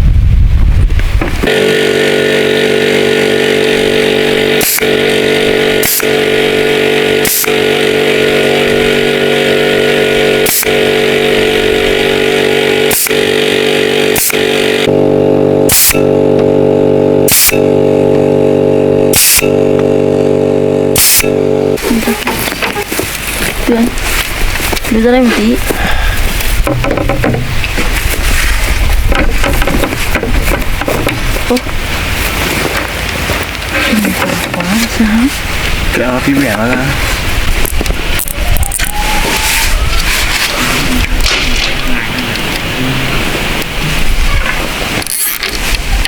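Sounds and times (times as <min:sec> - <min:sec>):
small-engine power tool running: 0:01.4 - 0:46.0
sharp clicks: 0:04.6 - 0:04.9, 0:10.4 - 0:10.8, 0:14.2 - 0:14.7.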